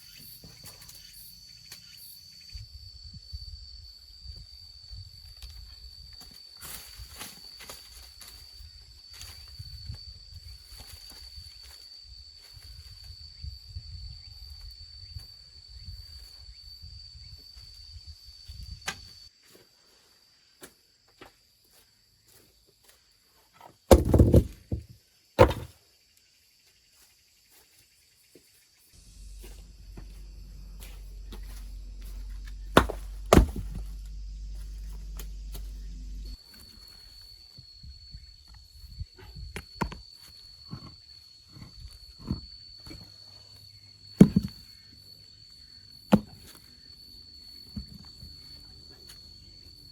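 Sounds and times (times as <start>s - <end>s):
heavy knocks: 23.9s - 24.8s, 32.4s - 34.1s
high-pitched buzz: 29.0s - 36.4s
low steady rumble: 29.0s - 36.4s.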